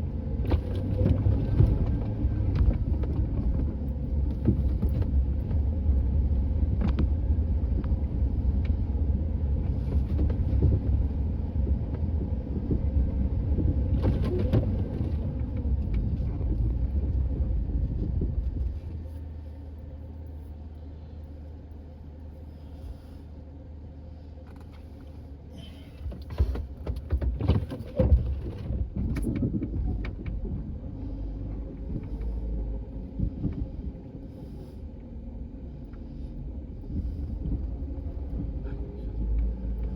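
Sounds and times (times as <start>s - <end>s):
vehicle engine running hard: 0.0s - 39.9s
irregular knocks and clatter: 0.4s - 6.0s, 26.0s - 30.8s.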